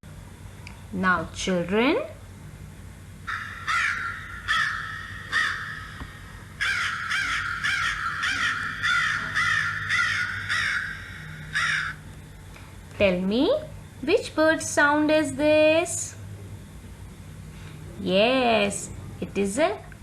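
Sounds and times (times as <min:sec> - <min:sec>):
crow cawing: 0:03.3 - 0:12.1.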